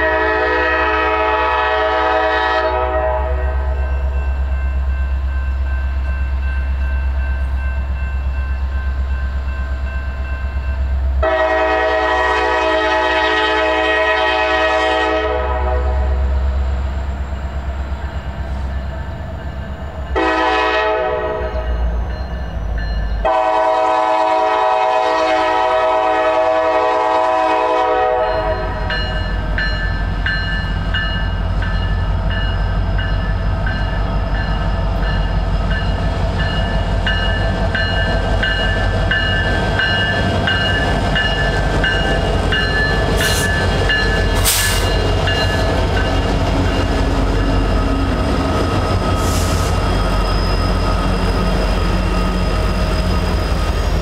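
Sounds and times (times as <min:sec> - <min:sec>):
locomotive air horn blasts: 0:00.0 - 0:03.8, 0:11.2 - 0:16.3, 0:20.2 - 0:21.6, 0:23.2 - 0:28.9
train rumble: 0:00.0 - 0:54.0.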